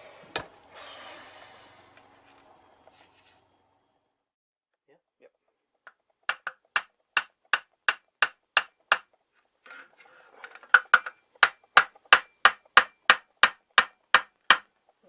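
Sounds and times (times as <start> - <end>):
hammer tapping a blade: 6.3 - 9.2, 10.8 - 14.7
faint scraping: 9.6 - 10.7.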